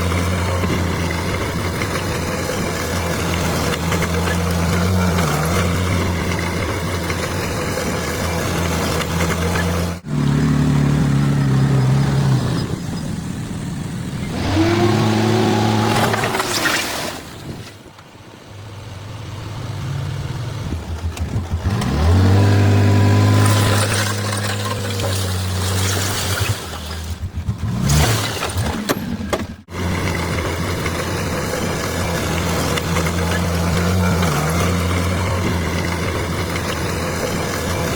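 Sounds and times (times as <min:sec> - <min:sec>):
bulldozer diesel engine revving: 0:00.0 - 0:16.6, 0:18.6 - 0:37.9.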